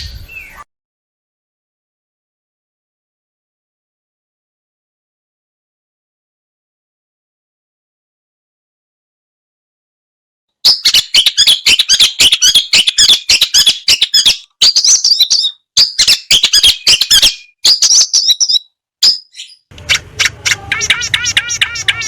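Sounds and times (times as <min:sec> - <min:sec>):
shrike singing harsh chattering: 0:19.7 - 0:22.0.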